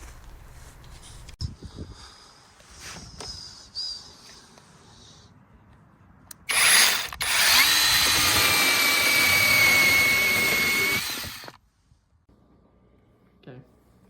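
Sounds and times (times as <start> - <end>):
mini chainsaw whining: 6.4 - 11.6.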